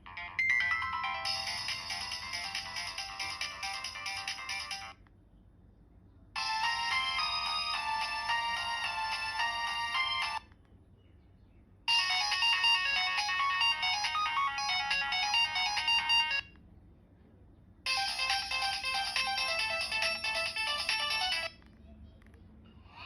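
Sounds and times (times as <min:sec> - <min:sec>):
phone ringtone electronic melody: 0:00.1 - 0:05.0, 0:06.4 - 0:10.4, 0:11.9 - 0:16.5, 0:17.9 - 0:21.5.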